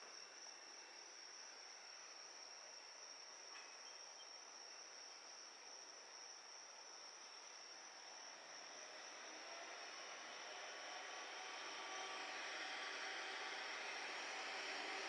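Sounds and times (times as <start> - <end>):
insects trilling: 0.1 - 15.0.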